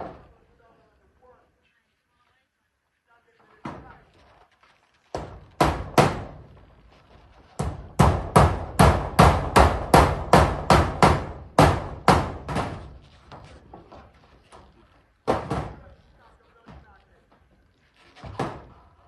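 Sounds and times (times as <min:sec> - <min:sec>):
hammer on corrugated metal: 0:05.2 - 0:06.4, 0:07.6 - 0:13.0, 0:15.2 - 0:15.8.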